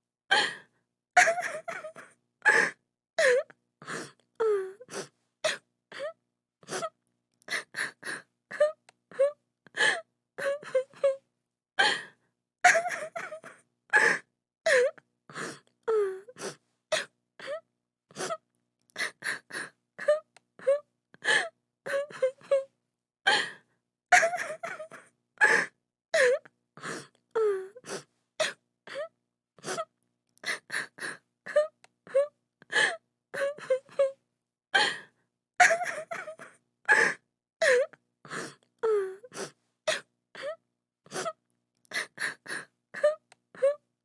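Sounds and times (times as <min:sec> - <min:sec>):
woman crying and sobbing: 0:01.2 - 0:03.4, 0:12.7 - 0:14.9, 0:24.1 - 0:26.4, 0:30.5 - 0:34.1, 0:35.6 - 0:37.9.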